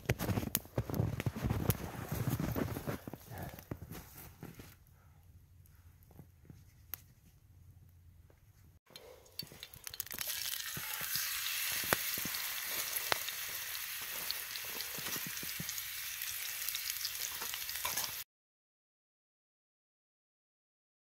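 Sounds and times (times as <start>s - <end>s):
fish sizzling in a pan: 9.4s - 18.2s.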